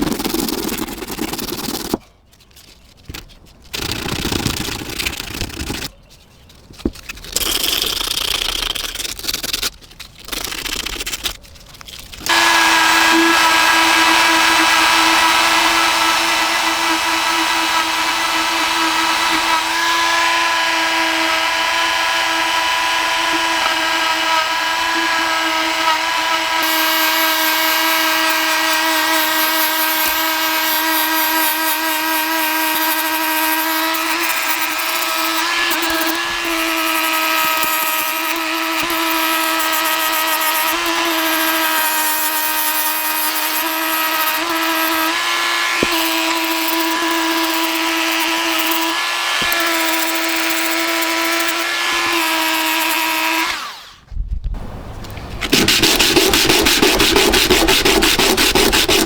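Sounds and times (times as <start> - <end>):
electric power tool running: 12.2 - 54.1, 54.7 - 59.0
bursts of working noise: 12.2 - 59.0.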